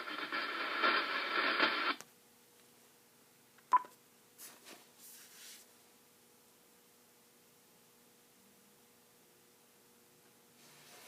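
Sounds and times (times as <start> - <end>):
noisy radio audio: 0.0 - 2.0.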